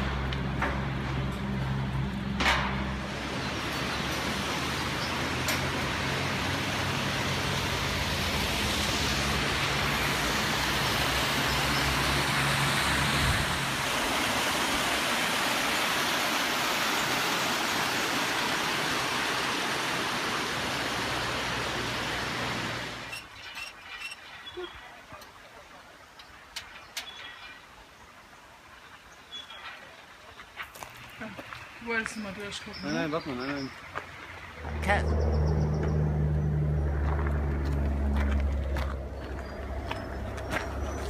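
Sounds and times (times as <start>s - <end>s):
road and tyre rush: 0.0s - 24.5s, 26.2s - 41.0s
low engine hum: 34.2s - 41.0s.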